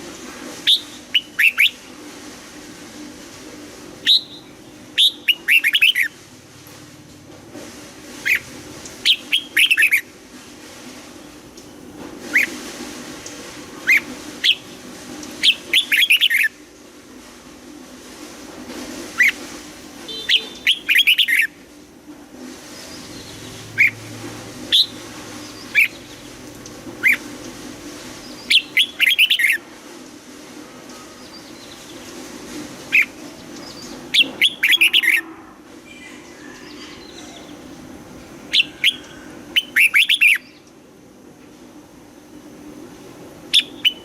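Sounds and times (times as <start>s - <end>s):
bulbul singing whistled notes: 20.1s - 21.5s, 38.5s - 40.7s, 43.6s - 44.0s.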